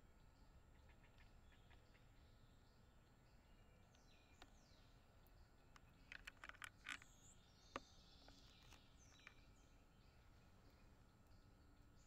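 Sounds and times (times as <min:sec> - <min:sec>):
bird chips and clicks: 0:04.0 - 0:09.6.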